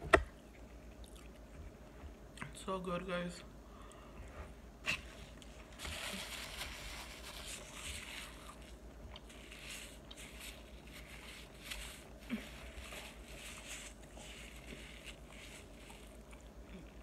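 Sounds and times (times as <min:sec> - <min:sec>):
chewing food: 0:00.6 - 0:01.7, 0:07.6 - 0:17.0.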